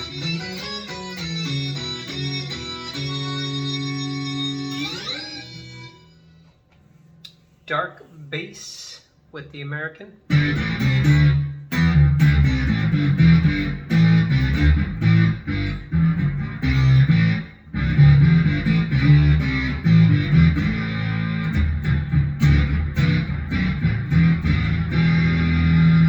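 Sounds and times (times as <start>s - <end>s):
deep synth-bass line: 10.3s - 26.0s.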